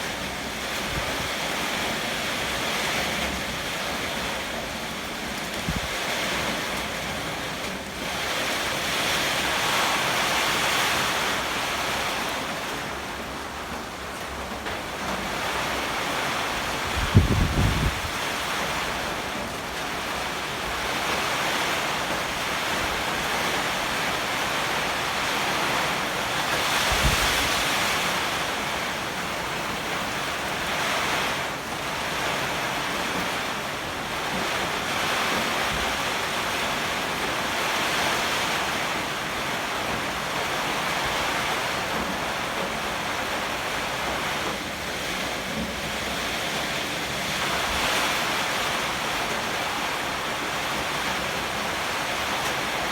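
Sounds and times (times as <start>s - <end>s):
heavy rain: 0.0s - 52.9s
strong gusting wind: 15.4s - 19.2s, 20.1s - 39.8s
low wind buffet: 16.7s - 18.5s, 26.2s - 30.4s.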